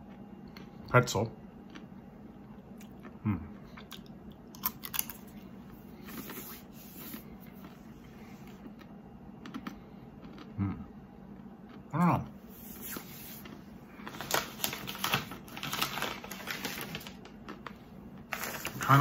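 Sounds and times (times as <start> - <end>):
person humming: 3.2 - 3.5, 10.6 - 10.9
pretzel crunching: 3.9 - 5.3.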